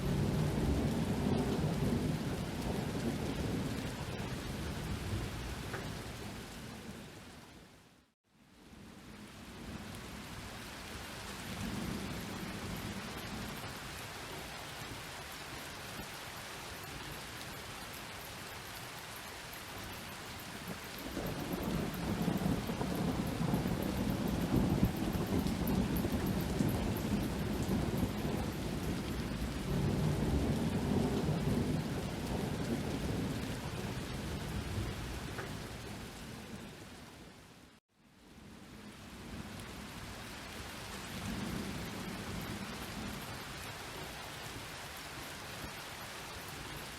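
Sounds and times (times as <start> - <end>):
distant thunder rumbling: 0.0 - 7.1, 20.6 - 36.8
steady rain falling: 0.0 - 46.9.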